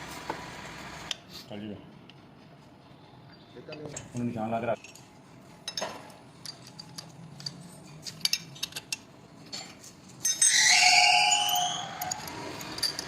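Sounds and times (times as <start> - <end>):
metal tools clinking: 3.7 - 13.0.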